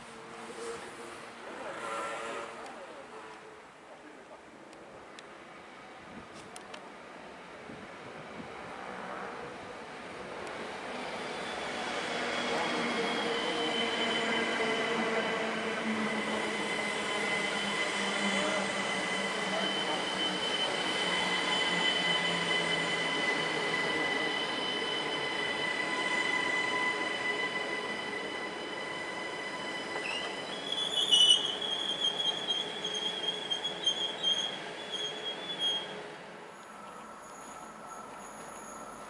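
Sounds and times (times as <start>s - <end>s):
electric train running past: 0.1s - 3.4s, 7.4s - 39.0s
wheel squeal: 28.7s - 36.0s, 37.2s - 39.0s.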